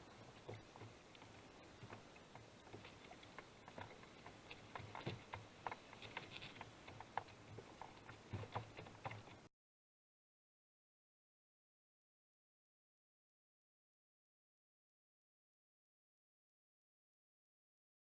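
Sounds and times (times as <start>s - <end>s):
faint ticking and clicking: 0.0s - 9.5s.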